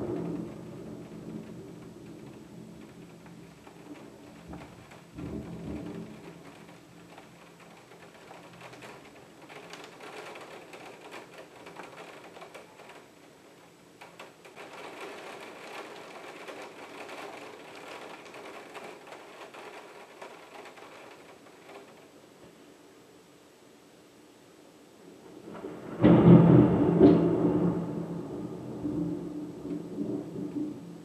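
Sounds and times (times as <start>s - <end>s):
thunder rumble: 0.0s - 13.1s, 25.1s - 31.0s
raindrops ticking on window glass: 0.0s - 22.4s.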